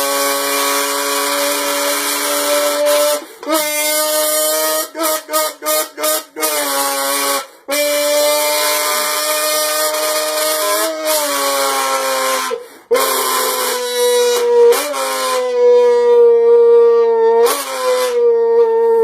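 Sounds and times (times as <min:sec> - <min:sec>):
short breath: 0:03.2 - 0:03.5, 0:12.6 - 0:12.9.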